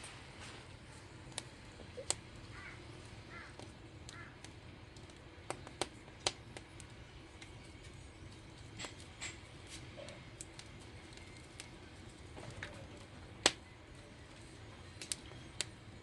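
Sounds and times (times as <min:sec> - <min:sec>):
burning logs popping: 0:00.0 - 0:16.0
wood fire crackling: 0:00.0 - 0:16.0.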